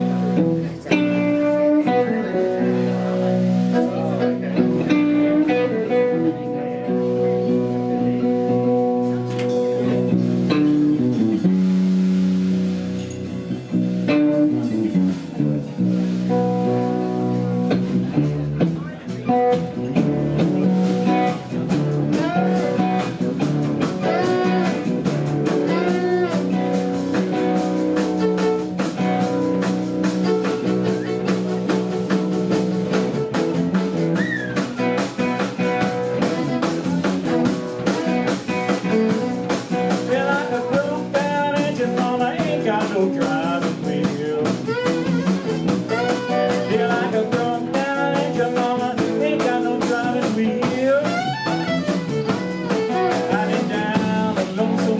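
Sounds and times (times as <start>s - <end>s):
drums: 0.0s - 54.9s
guitar: 0.0s - 54.9s
violin: 21.2s - 32.5s, 34.7s - 39.9s, 44.3s - 48.8s, 49.6s - 54.6s.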